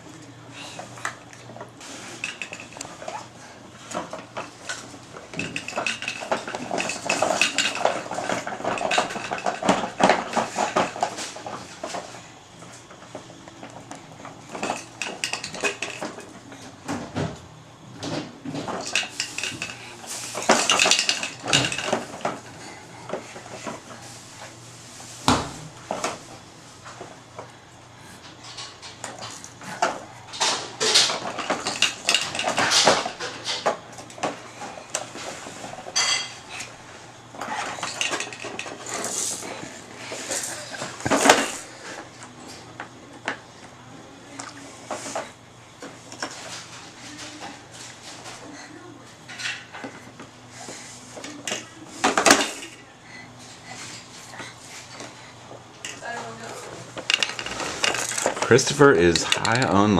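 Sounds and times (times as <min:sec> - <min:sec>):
hard objects clattering and knocking: 0:01.5 - 0:12.2, 0:12.9 - 0:17.4, 0:18.0 - 0:24.0, 0:28.4 - 0:42.1, 0:51.2 - 0:52.8, 0:55.8 - 0:59.9.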